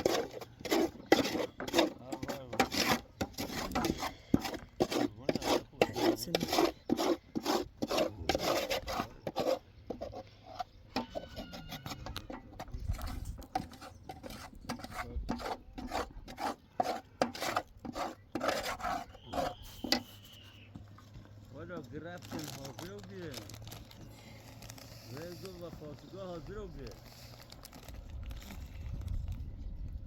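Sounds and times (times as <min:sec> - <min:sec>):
rasping scraping strokes: 0:00.0 - 0:20.5, 0:24.6 - 0:27.2.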